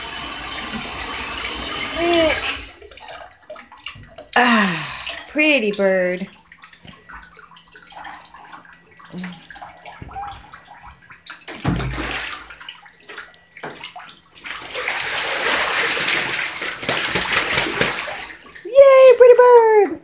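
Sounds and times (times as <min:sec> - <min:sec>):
goose splashing in water: 0:05.8 - 0:13.2, 0:13.8 - 0:18.6.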